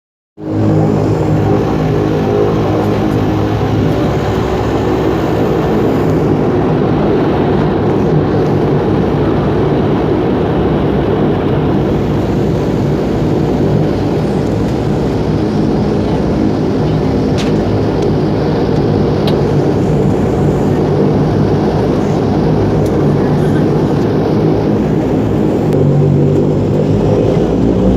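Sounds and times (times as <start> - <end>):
turboprop engines droning: 0.4 - 27.9.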